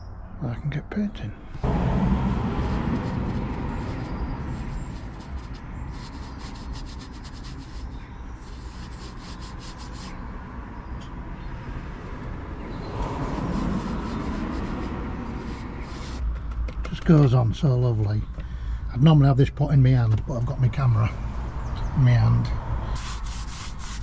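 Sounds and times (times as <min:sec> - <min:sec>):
paintbrush strokes on wood: 0:01.6 - 0:10.2, 0:13.2 - 0:16.2.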